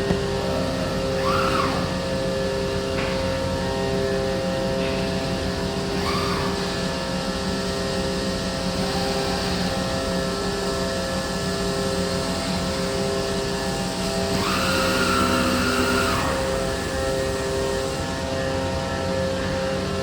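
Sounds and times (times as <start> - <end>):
router machine drone: 0.0 - 20.0.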